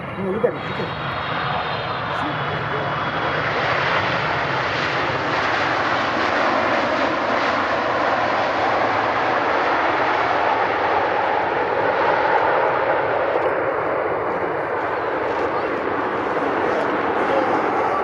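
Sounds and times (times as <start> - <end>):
airliner engines roaring: 0.0 - 18.0.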